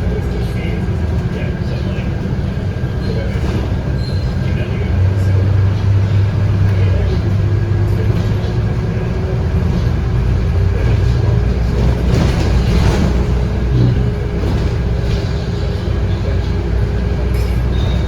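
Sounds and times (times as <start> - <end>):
bus diesel engine drone: 0.0 - 18.0.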